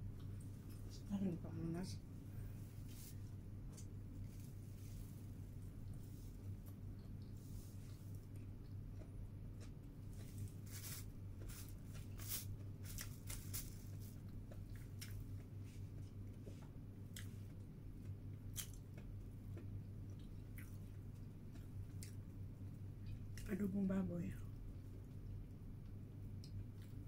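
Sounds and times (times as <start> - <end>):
steady low hum: 0.0 - 27.0
chewing with wet mouth clicks: 0.2 - 0.9, 5.8 - 10.4, 14.2 - 16.5, 17.1 - 23.5, 24.5 - 27.0.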